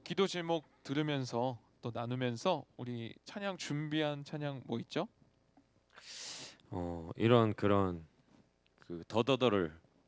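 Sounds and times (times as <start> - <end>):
sharp intake of breath: 5.9 - 6.6.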